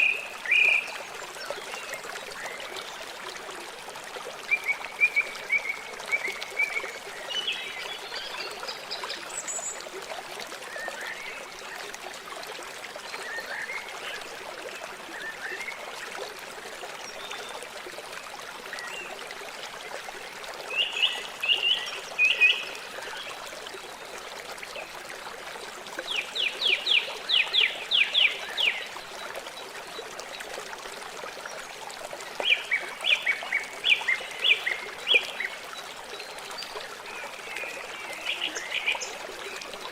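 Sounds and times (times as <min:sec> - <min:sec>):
flowing river water: 0:00.0 - 0:39.9.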